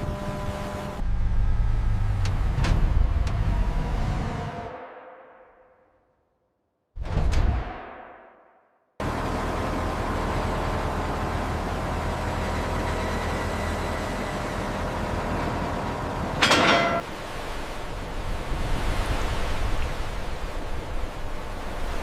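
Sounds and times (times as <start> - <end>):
heavy vehicle engines rumbling: 9.0 - 17.0.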